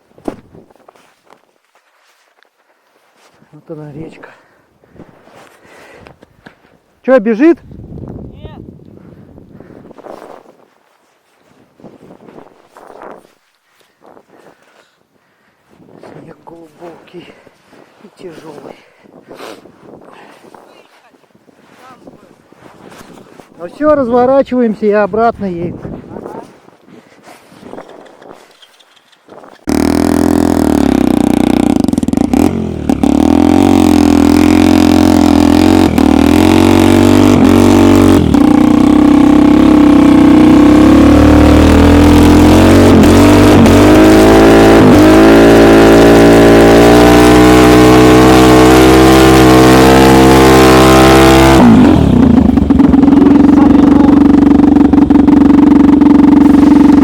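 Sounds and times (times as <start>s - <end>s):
snowmobile engine revving: 29.7s - 57.0s.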